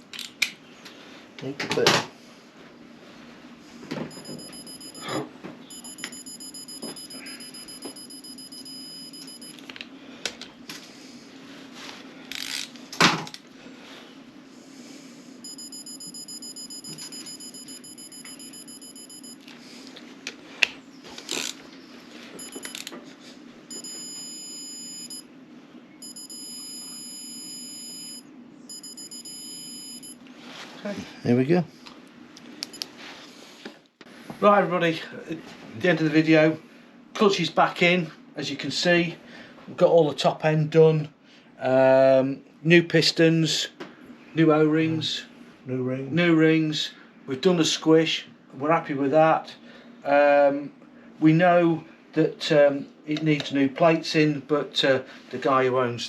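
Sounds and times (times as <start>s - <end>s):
high-pitched electronic whine: 4.1s - 9.6s, 15.4s - 19.4s
low hum: 15.4s - 19.5s.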